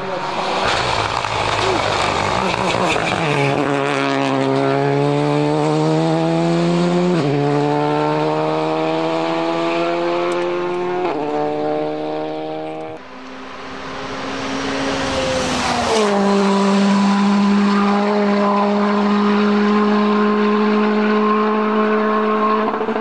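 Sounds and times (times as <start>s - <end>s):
rally car engine at full throttle: 0.0s - 23.0s.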